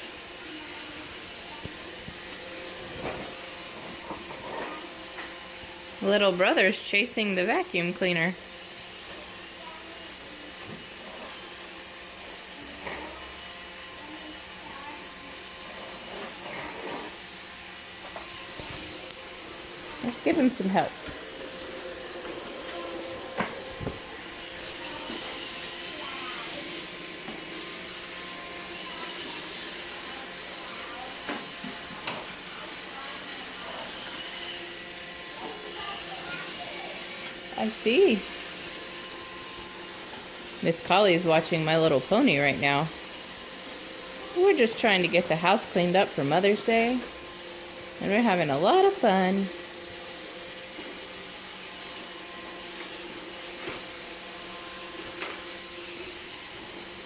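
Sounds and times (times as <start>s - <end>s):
robot vacuum hissing: 18.0s - 47.1s.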